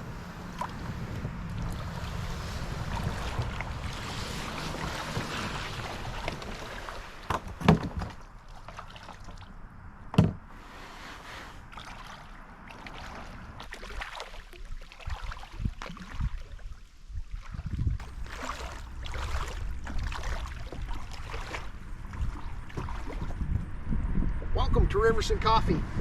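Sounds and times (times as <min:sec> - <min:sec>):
water splashing from paddle: 0:00.0 - 0:09.6, 0:10.5 - 0:23.7
paddle knocking on hull: 0:10.1 - 0:10.4, 0:18.0 - 0:23.6.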